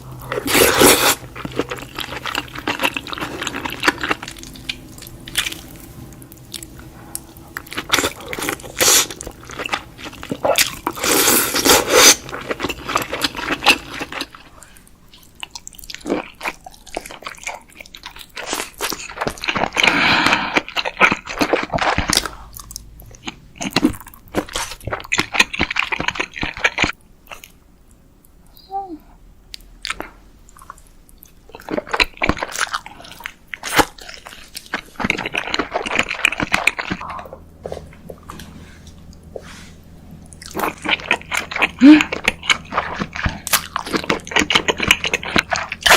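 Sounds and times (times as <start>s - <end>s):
chewing: 0.1s - 27.6s, 29.5s - 45.9s
crab shells cracking and crunching: 40.4s - 45.9s.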